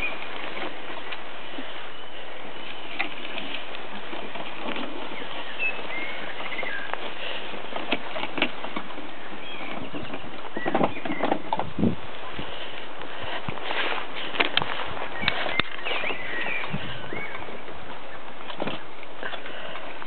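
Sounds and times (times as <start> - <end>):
bird chirps: 5.0 - 7.4, 9.1 - 11.5, 15.1 - 17.6.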